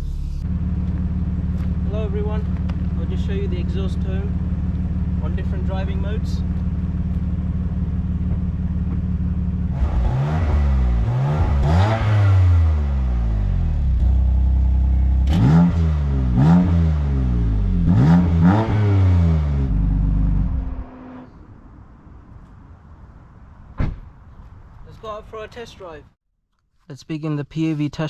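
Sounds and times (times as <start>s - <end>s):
car engine revving: 0.0s - 21.5s
exhaust cracks: 0.0s - 21.6s.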